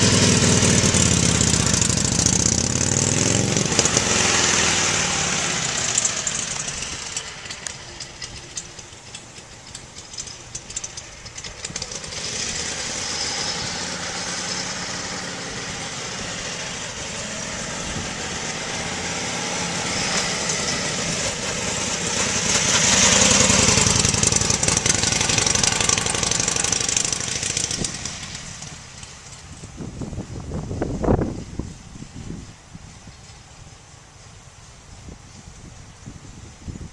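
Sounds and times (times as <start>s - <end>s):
motorcycle engine running at low revs: 0.0s - 33.1s.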